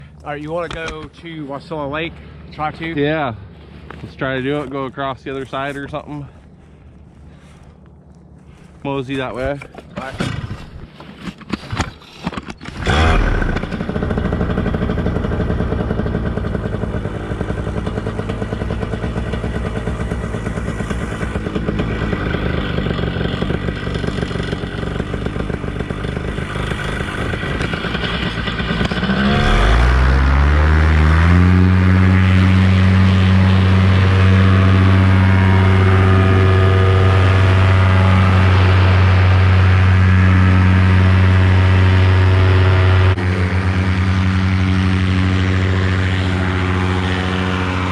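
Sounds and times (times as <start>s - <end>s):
paramotor engine and propeller: 0.0s - 47.9s.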